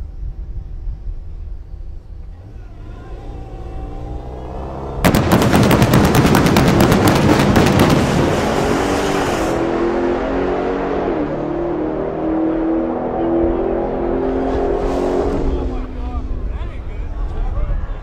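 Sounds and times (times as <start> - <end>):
car engine launching with loud crackle: 4.9 - 9.7.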